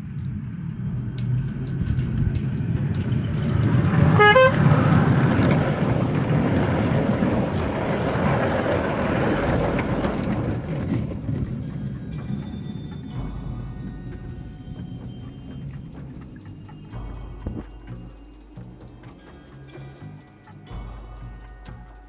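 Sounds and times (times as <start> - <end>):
miniature train rumbling: 0.0 - 22.0
train horn toot: 3.9 - 5.9.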